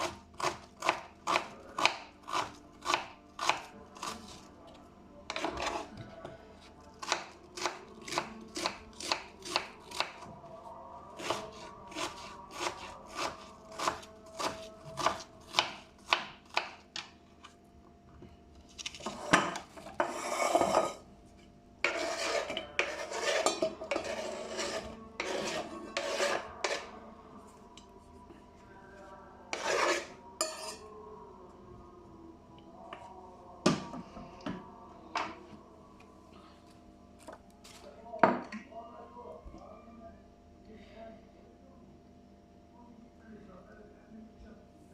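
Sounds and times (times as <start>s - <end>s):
dishes and utensils clatter: 19.0s - 21.1s, 22.4s - 26.8s
knife cutting on board: 21.8s - 26.9s, 29.5s - 30.7s.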